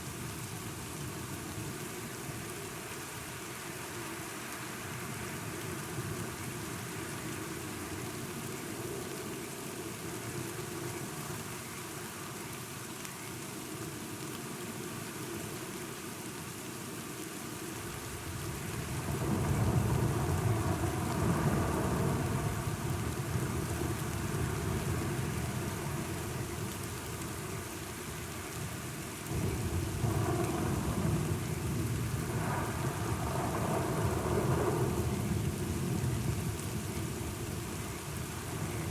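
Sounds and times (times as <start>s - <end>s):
steady rain: 0.0s - 38.9s
rolling thunder: 29.3s - 36.6s.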